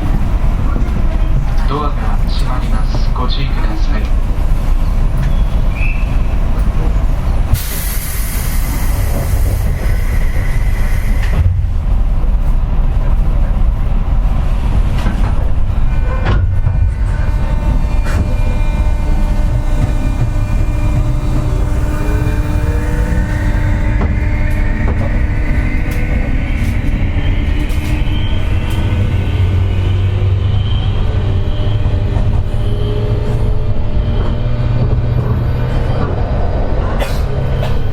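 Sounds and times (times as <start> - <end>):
train interior rumble: 0.0 - 37.9
pneumatic air hiss: 7.6 - 11.4.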